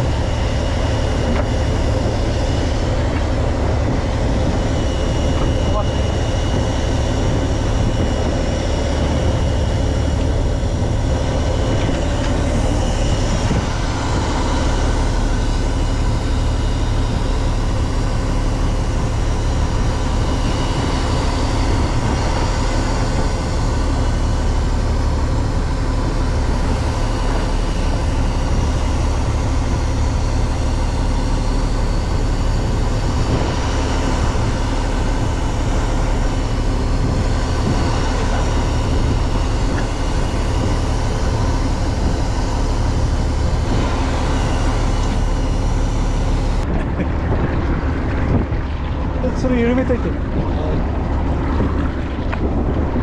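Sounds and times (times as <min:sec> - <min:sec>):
boat engine humming: 0:00.0 - 0:53.0
faint steady whining tones: 0:00.0 - 0:53.0.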